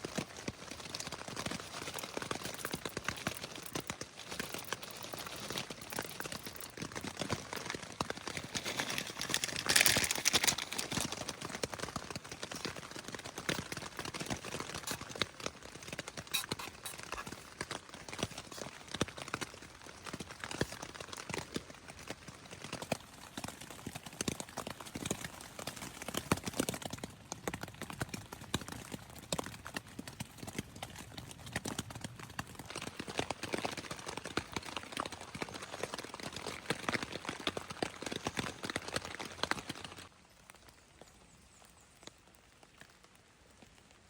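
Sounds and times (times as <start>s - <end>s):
rain pattering: 0.0s - 44.0s.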